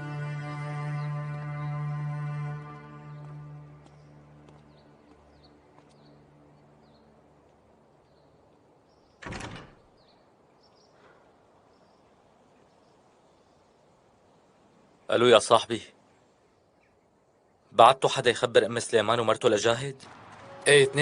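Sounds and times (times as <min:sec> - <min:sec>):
background music: 0:00.0 - 0:07.9, 0:20.1 - 0:21.0
door moving: 0:09.2 - 0:09.9
faint bird chirps: 0:16.0 - 0:17.8.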